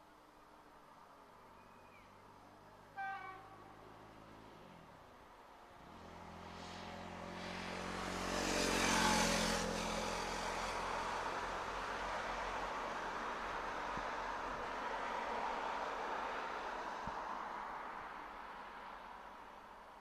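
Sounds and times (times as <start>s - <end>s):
train horn toot: 3.0s - 3.8s.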